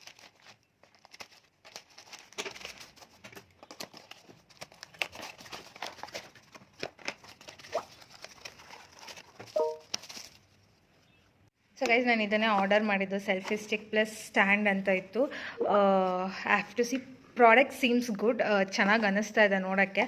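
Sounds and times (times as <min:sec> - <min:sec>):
packaging torn and crinkling: 0:00.0 - 0:10.6.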